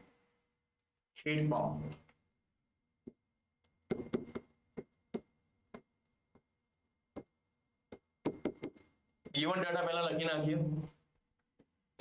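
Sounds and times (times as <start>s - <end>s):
pen tapping on writing surface: 3.9s - 5.9s, 7.9s - 8.9s.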